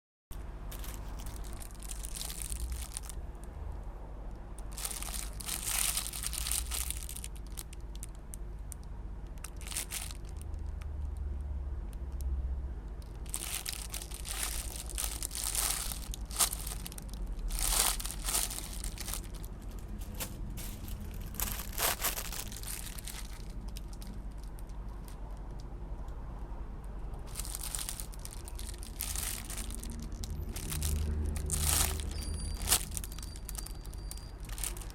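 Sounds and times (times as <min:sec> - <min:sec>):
low steady hum: 0:00.3 - 0:34.9
packaging crinkling and tearing: 0:00.7 - 0:03.2, 0:04.6 - 0:08.3, 0:09.4 - 0:10.8, 0:13.0 - 0:25.5, 0:27.3 - 0:34.9.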